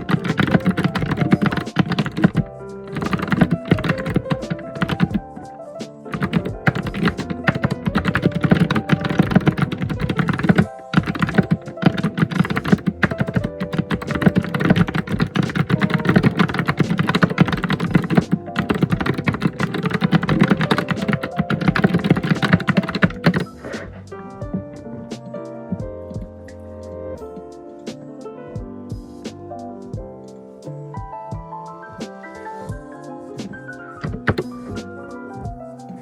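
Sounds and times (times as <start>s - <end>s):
fast typing on keyboard: 0.0s - 23.5s, 34.0s - 34.5s
background music: 0.0s - 36.0s.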